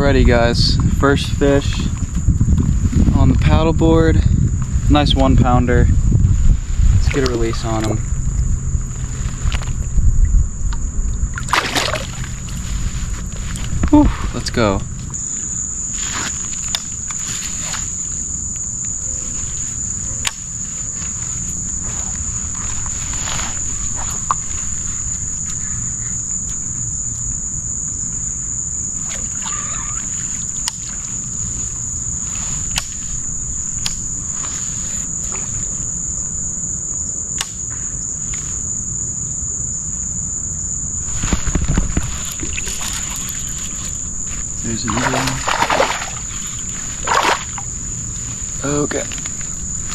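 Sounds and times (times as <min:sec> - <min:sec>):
low rumble: 0:00.0 - 0:15.2
low-pitched noise: 0:00.0 - 0:16.1
insects buzzing: 0:00.0 - 0:49.9.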